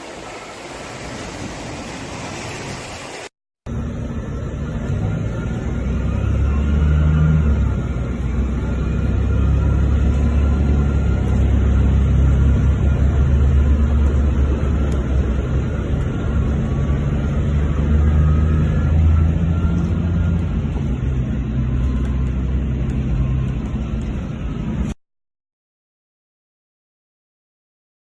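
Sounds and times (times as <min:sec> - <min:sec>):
vehicle low rumble: 0:03.7 - 0:25.0.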